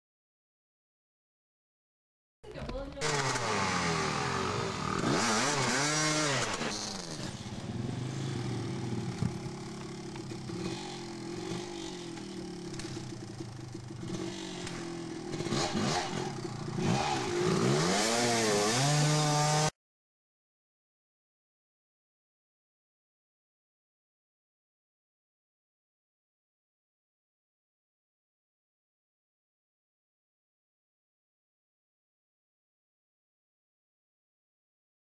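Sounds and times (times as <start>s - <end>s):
dirt bike engines revving: 2.5s - 19.7s.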